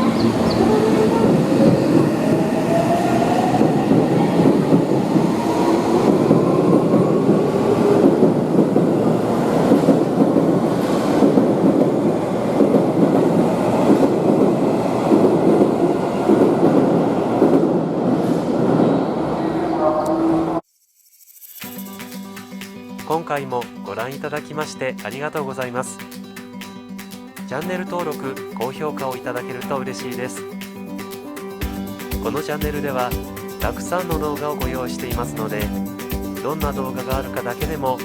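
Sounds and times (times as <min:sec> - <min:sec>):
train wheel and rail noise: 0:00.0 - 0:20.6.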